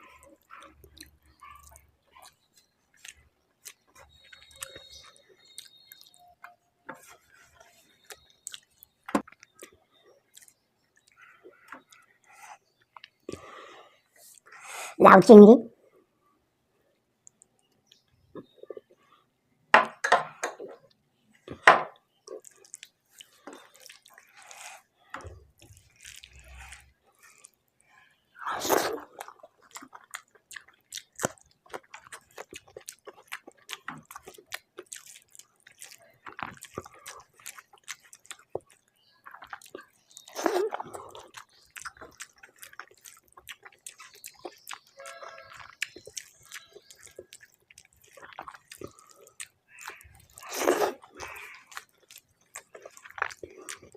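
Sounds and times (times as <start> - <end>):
wet chewing: 0.0 - 14.8, 20.4 - 53.9
lip smacks: 28.4 - 53.9.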